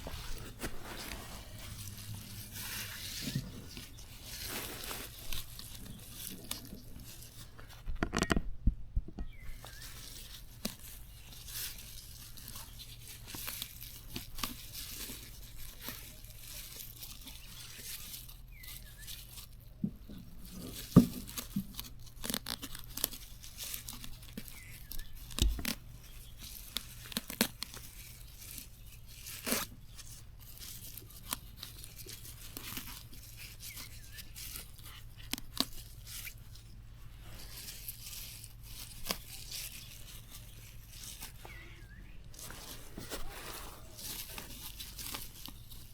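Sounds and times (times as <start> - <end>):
plant material tearing: 0.0 - 8.3, 9.4 - 45.9
stems snapping: 0.1 - 8.3, 20.7 - 36.4.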